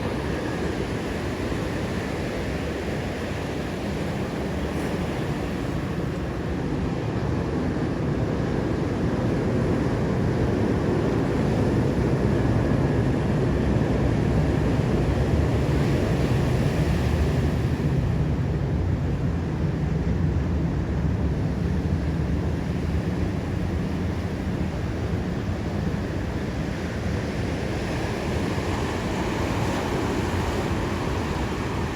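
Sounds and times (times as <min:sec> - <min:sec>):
ocean surf breaking: 0:22.6 - 0:31.9.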